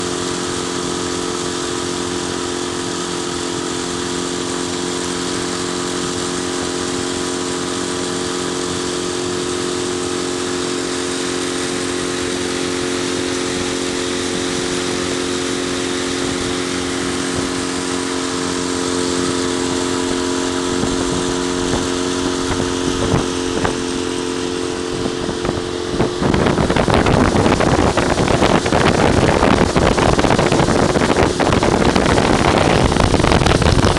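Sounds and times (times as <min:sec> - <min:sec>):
engine idling: 0:00.0 - 0:33.9
wind buffeting on microphone: 0:00.0 - 0:33.9.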